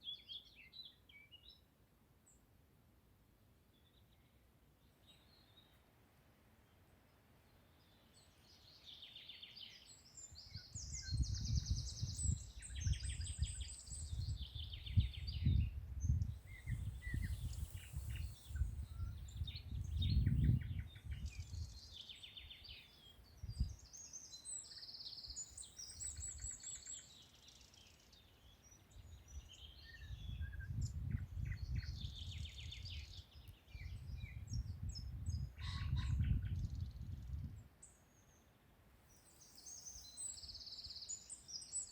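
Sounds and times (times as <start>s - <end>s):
songbirds singing and chirping: 0.0s - 2.6s, 3.6s - 5.9s, 6.5s - 41.9s
low gusty rumble: 15.0s - 21.4s.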